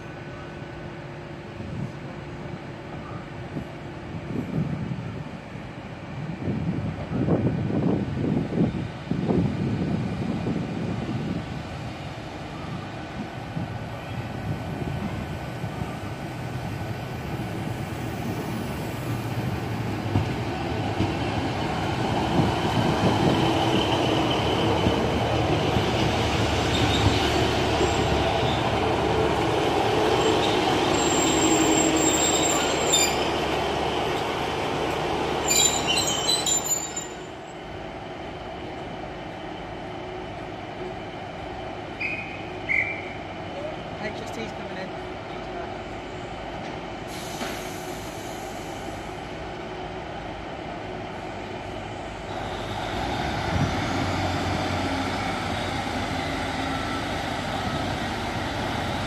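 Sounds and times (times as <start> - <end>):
diesel train engine and wheels: 0.0 - 59.0
high-pitched wheel squeal: 30.3 - 33.3, 35.4 - 37.3.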